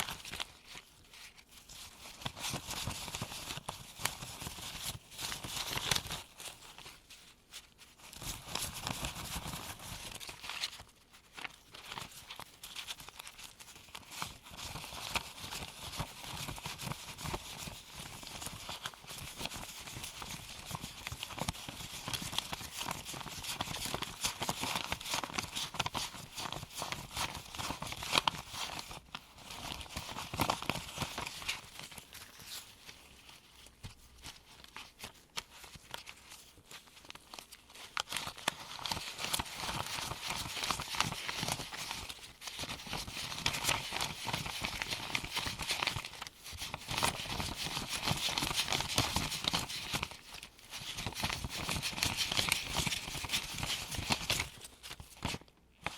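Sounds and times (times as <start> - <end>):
paper bills flicking: 33.8 - 55.9.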